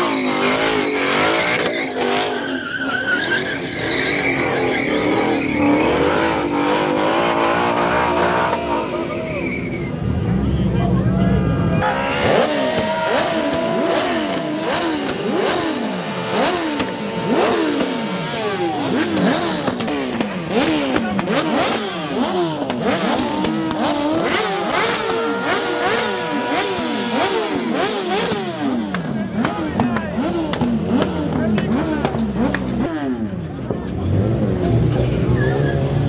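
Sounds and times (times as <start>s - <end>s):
high squealing tone: 0.0s - 10.0s, 11.5s - 20.7s
car engine revving: 0.0s - 36.0s.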